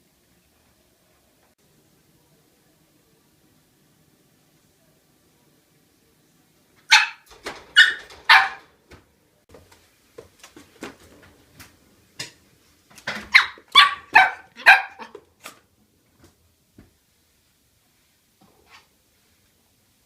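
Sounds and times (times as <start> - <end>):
puppy barking: 6.9 - 8.7, 13.3 - 15.2.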